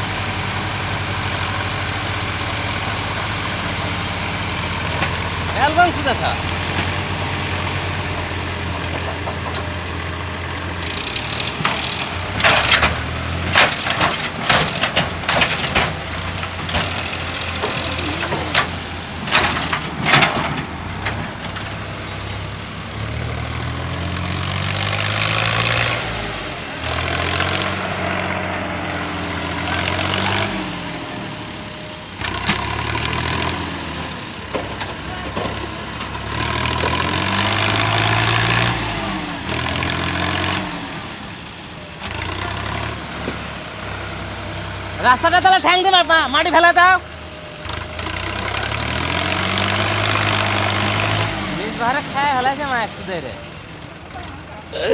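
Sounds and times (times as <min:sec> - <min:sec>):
tractor engine revving: 0:00.0 - 0:54.9
sharp clattering knocks: 0:10.8 - 0:21.8.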